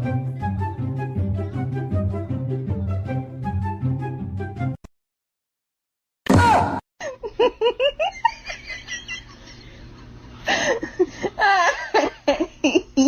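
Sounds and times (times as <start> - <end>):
person giggling: 7.0 - 13.0.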